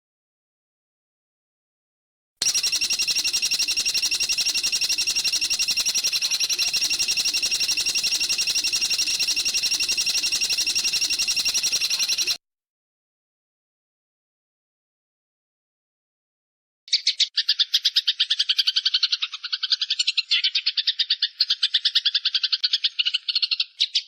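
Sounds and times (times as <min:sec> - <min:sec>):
bird's rapid high trill: 0:02.4 - 0:12.4.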